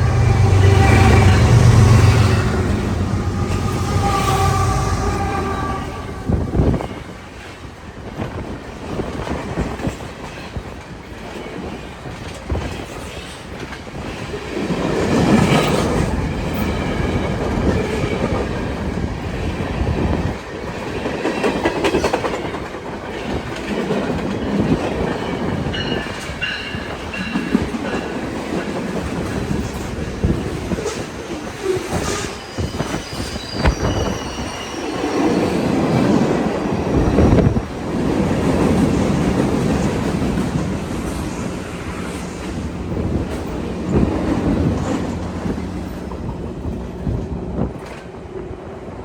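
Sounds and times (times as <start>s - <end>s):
freight train rolling past: 0.0s - 49.0s
high wheel squeals: 31.6s - 35.8s.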